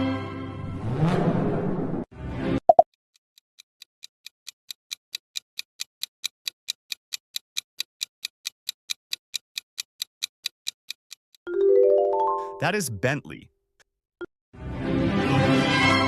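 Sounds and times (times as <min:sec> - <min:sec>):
clock ticking sound effect: 0:02.7 - 0:11.5.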